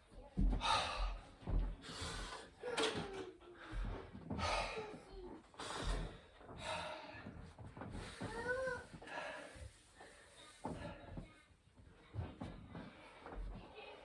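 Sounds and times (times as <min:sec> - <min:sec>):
man breathing heavily: 0:00.4 - 0:02.9, 0:03.5 - 0:10.9.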